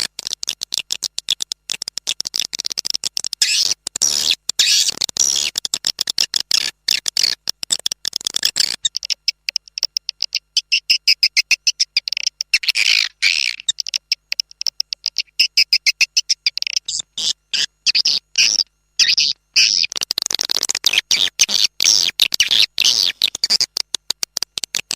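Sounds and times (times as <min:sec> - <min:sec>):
low raspy bird calls: 0:08.6 - 0:20.0
swiftlets twittering: 0:08.8 - 0:23.8.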